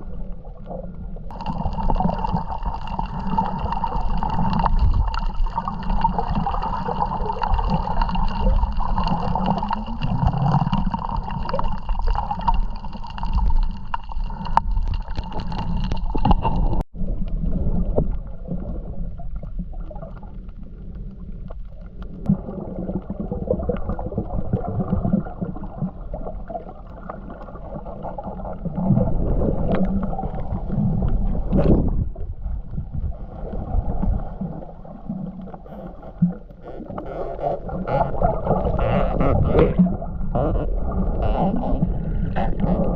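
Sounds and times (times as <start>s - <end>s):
water wash: 1.3s - 16.8s.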